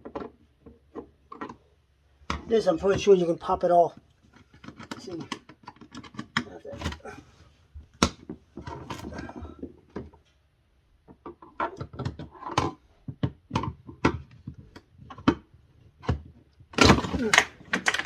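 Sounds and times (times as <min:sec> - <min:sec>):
plastic clicks and knocks: 0:00.0 - 0:01.6, 0:04.3 - 0:07.0, 0:07.8 - 0:10.2, 0:11.0 - 0:18.0.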